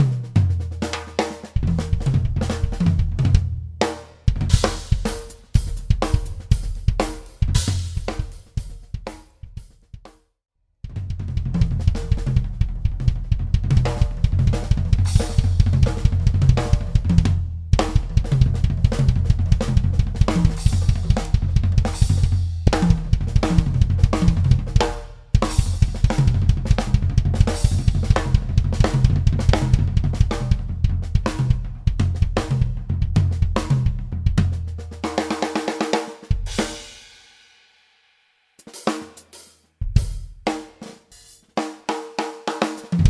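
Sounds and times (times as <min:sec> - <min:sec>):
drum kit playing a busy groove: 0:00.0 - 0:10.2, 0:10.9 - 0:37.3, 0:38.6 - 0:43.0
steady low bass: 0:10.9 - 0:24.8, 0:25.6 - 0:34.8.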